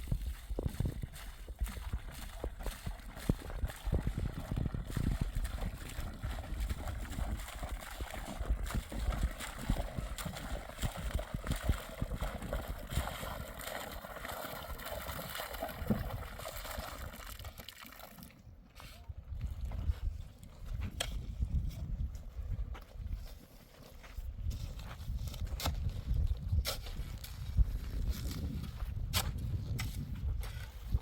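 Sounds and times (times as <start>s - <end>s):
mountain stream running: 0.1s - 18.3s.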